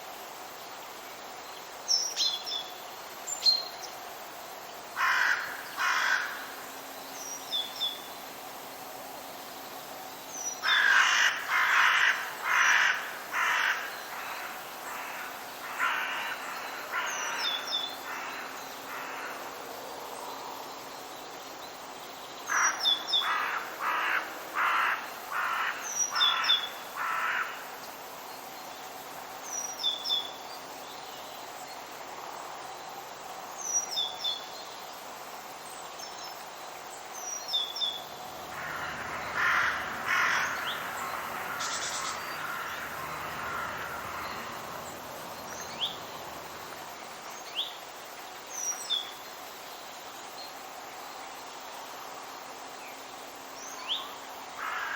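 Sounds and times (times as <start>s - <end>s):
steady background hiss: 0.0s - 54.9s
harsh rasping bird calls: 38.2s - 46.8s.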